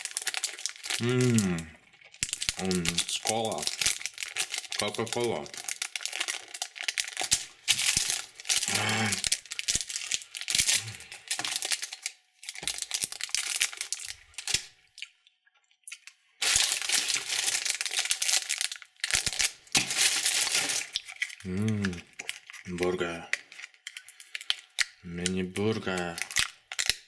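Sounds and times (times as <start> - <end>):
candy wrappers crinkling: 0.0 - 14.8, 15.9 - 27.0.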